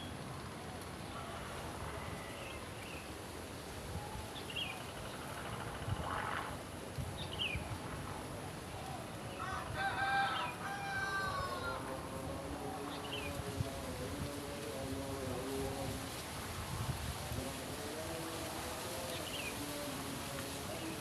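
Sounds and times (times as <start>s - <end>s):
rooster crowing: 9.4s - 12.0s.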